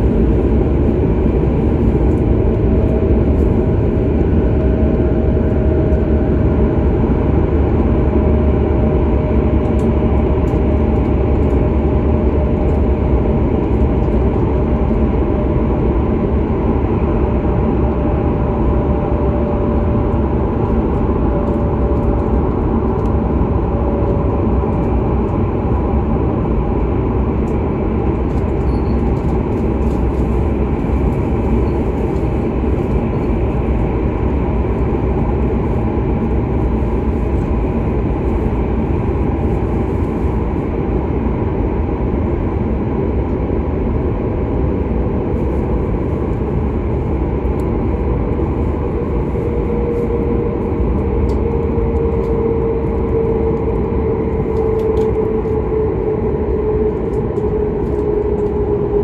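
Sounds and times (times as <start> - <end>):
train running rumble: 0.0 - 59.0.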